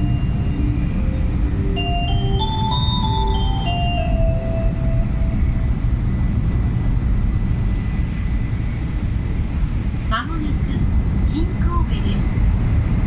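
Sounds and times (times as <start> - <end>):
announcement chime: 0.0 - 5.7
train running noise: 0.0 - 13.0.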